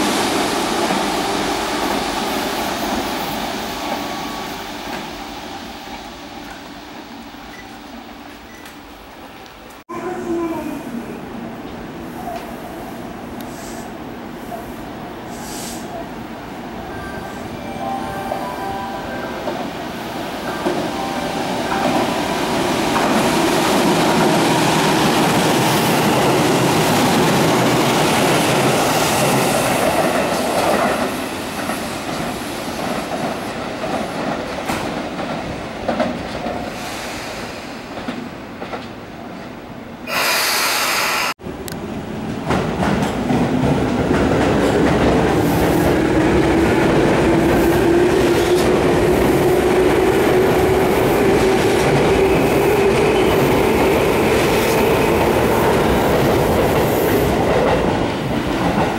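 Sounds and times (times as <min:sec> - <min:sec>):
train wheels rumbling and clacking: 0:19.4 - 0:58.9.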